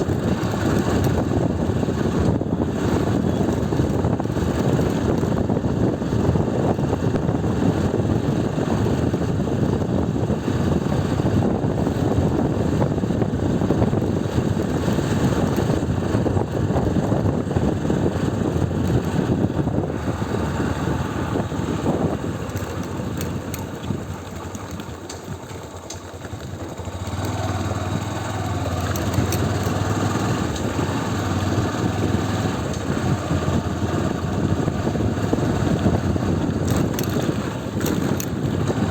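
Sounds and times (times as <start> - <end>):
motorcycle engine running: 0.0 - 38.9
wind noise on microphone: 0.0 - 38.9.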